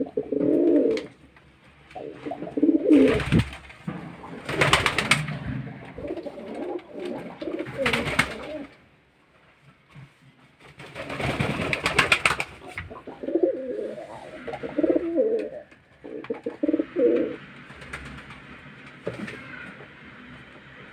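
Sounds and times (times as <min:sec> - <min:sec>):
pigeon cooing: 0:00.0 - 0:01.2, 0:02.0 - 0:03.5, 0:04.1 - 0:08.8, 0:12.6 - 0:17.4.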